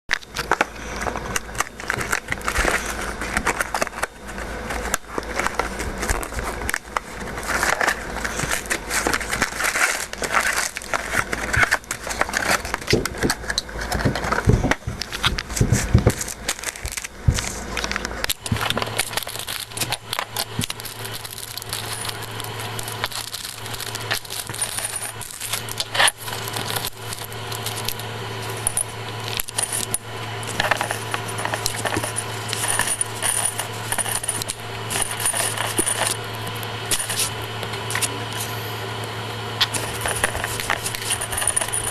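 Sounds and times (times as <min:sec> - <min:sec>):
steady low hum: 0:00.1 - 0:41.9
plastic toy bricks clattering: 0:07.4 - 0:36.2, 0:39.6 - 0:41.9.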